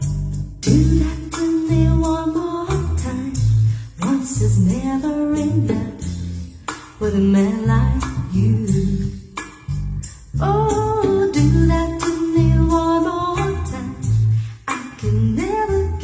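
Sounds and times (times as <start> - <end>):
person singing: 0.0 - 6.1, 10.4 - 16.0
drums: 0.0 - 16.0
heavy bass line: 0.0 - 16.0.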